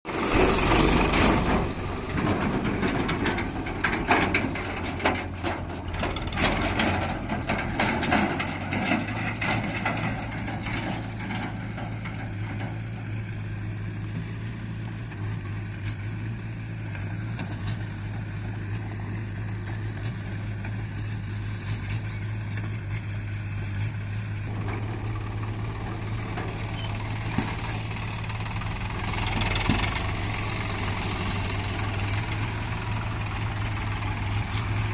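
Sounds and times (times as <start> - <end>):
diesel machinery engine: 0.0 - 34.9
clatter and knocks: 0.3 - 13.2, 24.5 - 34.9.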